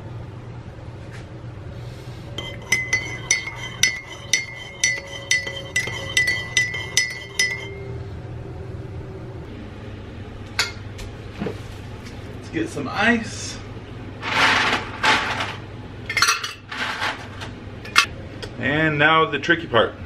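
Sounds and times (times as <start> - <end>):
spoon clinking against mug: 2.4 - 7.8.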